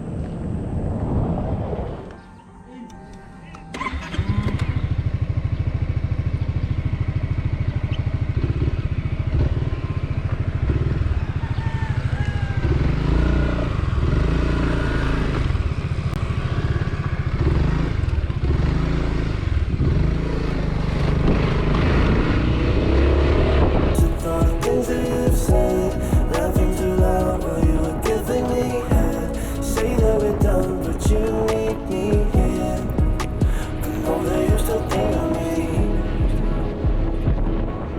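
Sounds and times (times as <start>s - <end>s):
scooter engine idling and revving: 3.7s - 24.7s.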